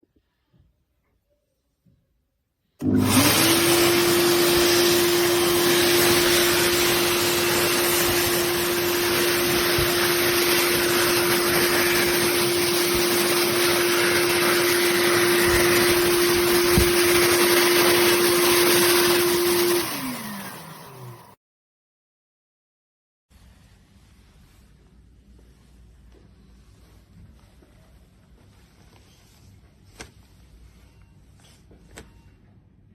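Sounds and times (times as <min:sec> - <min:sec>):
hand dryer motor whine: 0:02.8 - 0:21.4.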